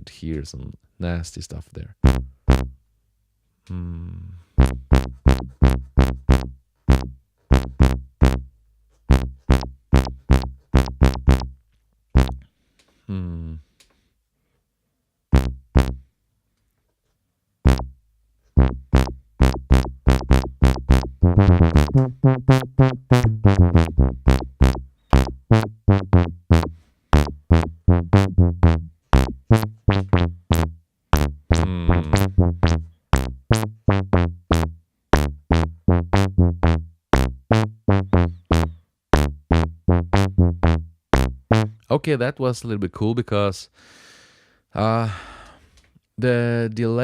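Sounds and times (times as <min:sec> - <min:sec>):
bubbly plucky synth notes: 0:02.0 - 0:02.7, 0:04.6 - 0:08.5, 0:09.1 - 0:11.5, 0:12.2 - 0:12.4, 0:15.4 - 0:16.0, 0:17.7 - 0:17.9, 0:18.6 - 0:41.8.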